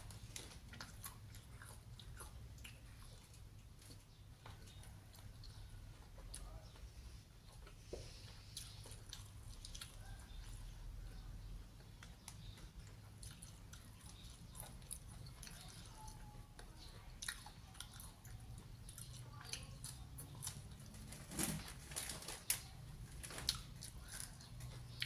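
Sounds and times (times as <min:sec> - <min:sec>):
person chewing crunchy food: 0:00.0 - 0:21.0, 0:23.2 - 0:25.0.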